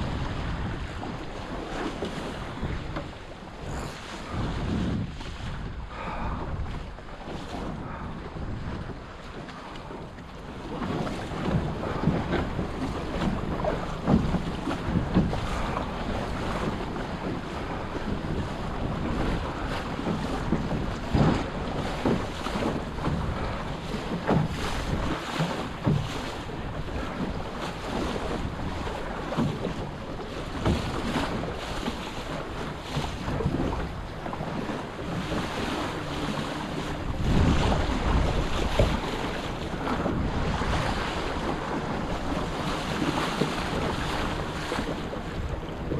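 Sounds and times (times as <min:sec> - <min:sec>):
water splashing against hull: 0:00.0 - 0:45.9
wind buffeting microphone: 0:00.0 - 0:45.9.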